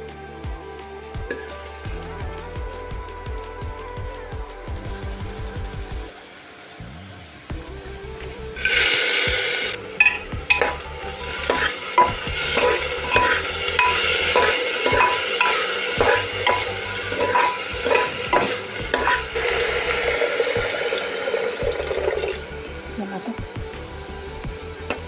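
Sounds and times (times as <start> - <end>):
food sizzling: 0.9 - 25.0
spoon scraping cooking pot: 10.0 - 19.9.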